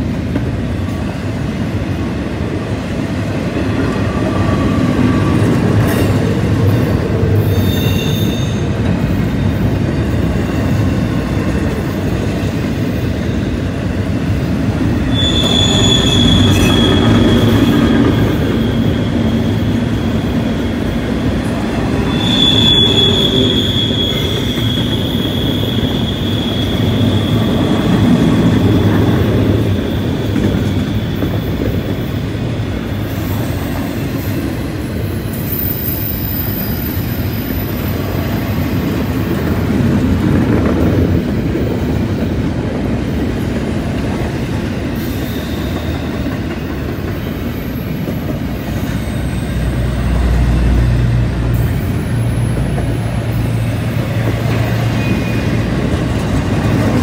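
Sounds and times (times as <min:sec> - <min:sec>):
freight train wheels rumbling: 0:00.0 - 0:57.0
high wheel squeal: 0:07.3 - 0:09.5, 0:15.0 - 0:34.6, 0:35.2 - 0:38.8, 0:44.9 - 0:50.8, 0:51.6 - 0:56.7.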